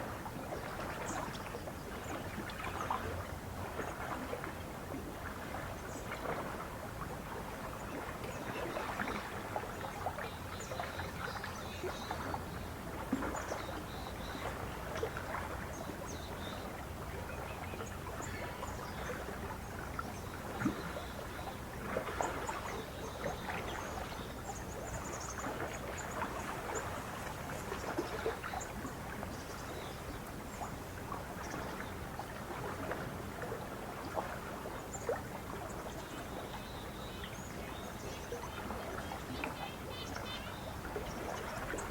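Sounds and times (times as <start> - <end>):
lake water lapping at shore: 0.0 - 41.9.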